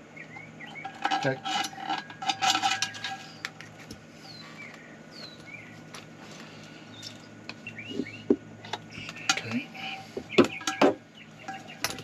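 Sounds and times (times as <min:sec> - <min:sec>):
bird whistling calls: 0:06.9 - 0:08.3.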